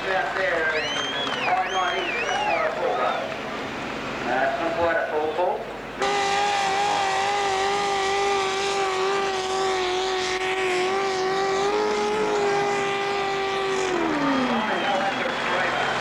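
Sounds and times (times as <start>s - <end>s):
tractor engine at high revs: 5.8s - 16.0s.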